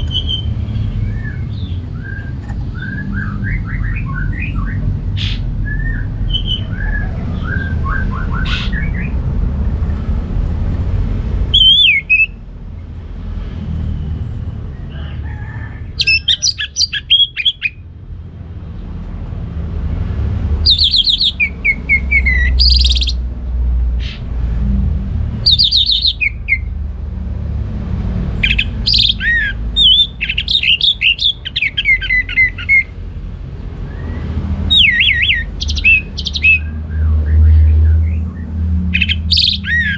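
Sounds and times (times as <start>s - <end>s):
bird singing high phrases: 0.0s - 9.2s, 11.4s - 12.4s, 16.0s - 17.9s, 20.6s - 23.2s, 25.4s - 26.7s, 28.4s - 33.0s, 33.8s - 39.9s.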